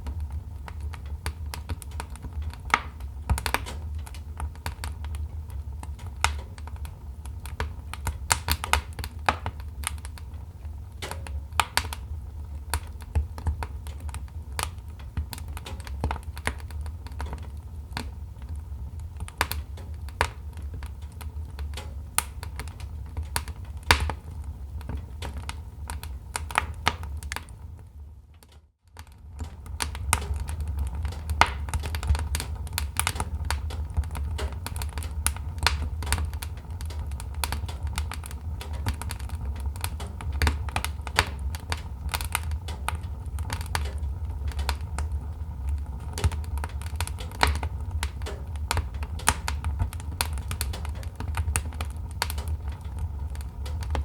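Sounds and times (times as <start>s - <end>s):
fire rumbling: 0.0s - 54.0s
wood popping and snapping: 0.7s - 18.6s, 19.2s - 27.6s, 29.4s - 54.0s.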